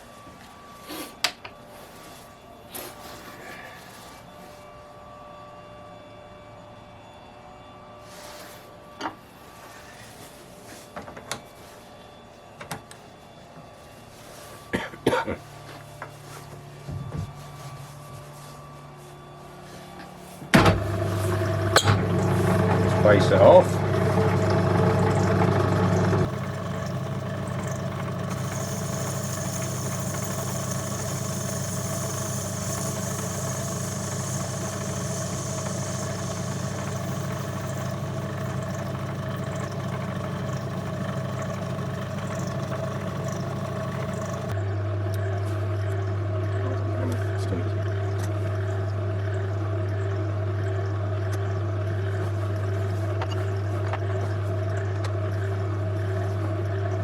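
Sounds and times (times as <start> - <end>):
lathe motor humming: 20.6 - 44.6.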